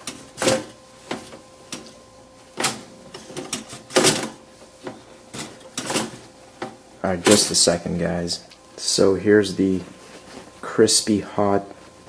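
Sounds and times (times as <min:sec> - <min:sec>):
metal clanks and rattles from toaster: 0:02.6 - 0:04.4, 0:05.3 - 0:06.2.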